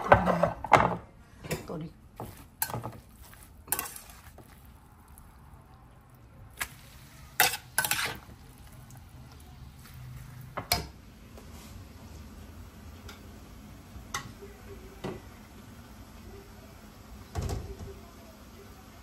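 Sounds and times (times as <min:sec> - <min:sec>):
spoon knocking and scraping dishes: 0:00.0 - 0:04.6, 0:10.5 - 0:10.9
faint frying sizzle: 0:02.2 - 0:19.0.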